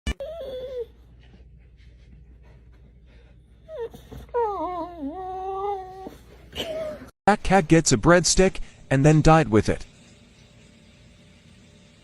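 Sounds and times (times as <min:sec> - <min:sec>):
dog whining: 0:00.1 - 0:01.2, 0:03.6 - 0:07.1.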